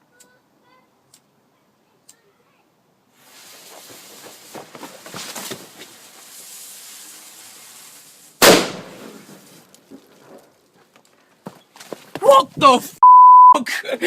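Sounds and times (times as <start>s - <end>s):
firecracker fuse hissing: 3.1s - 9.7s
firecracker bang: 8.4s - 9.5s.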